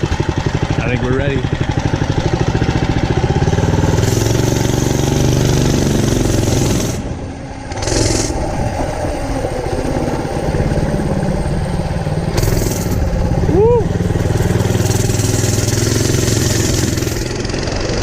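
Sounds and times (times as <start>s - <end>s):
minibike engine revving: 0.0s - 18.0s.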